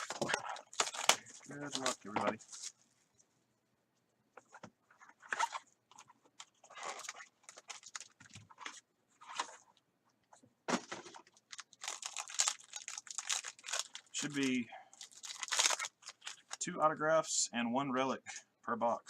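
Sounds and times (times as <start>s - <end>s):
plastic wrap and cardboard crinkling: 0.0s - 2.8s, 5.3s - 9.6s, 10.8s - 16.6s.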